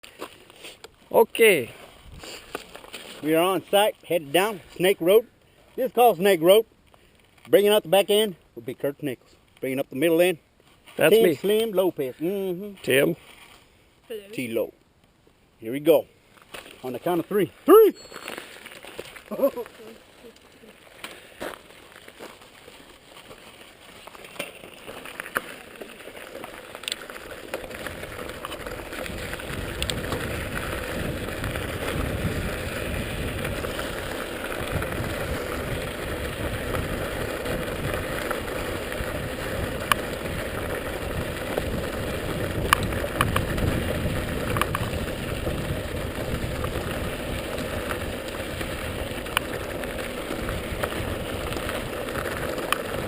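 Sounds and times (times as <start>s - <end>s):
bike tyres rushing on dirt: 0.0s - 9.1s, 15.8s - 53.0s
bike rattling and knocking: 24.0s - 53.0s.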